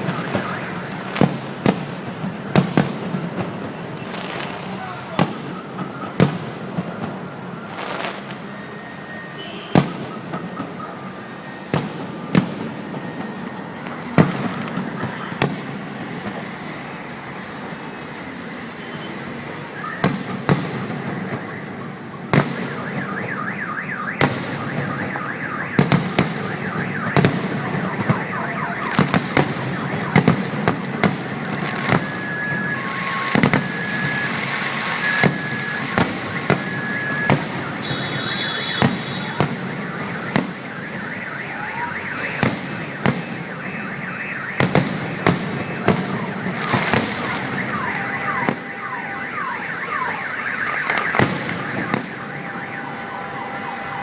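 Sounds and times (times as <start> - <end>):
fireworks bangs: 0.0 - 54.0
fireworks crackling: 0.0 - 54.0
repeating electronic beeping: 51.0 - 54.0.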